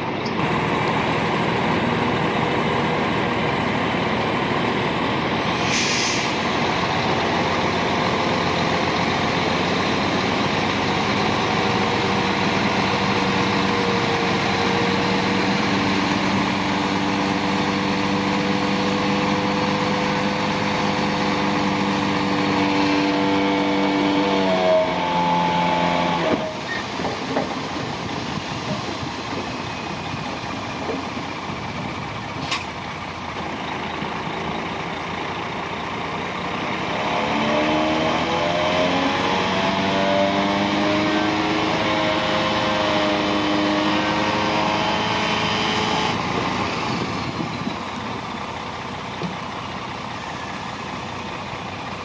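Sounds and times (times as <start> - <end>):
heavy diesel engine running: 0.0 - 52.0
short hiss: 5.5 - 6.5.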